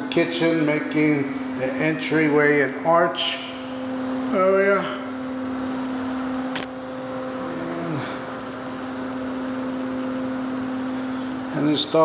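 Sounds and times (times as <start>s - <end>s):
low electrical hum: 0.0s - 12.0s
sharp click: 6.5s - 6.7s.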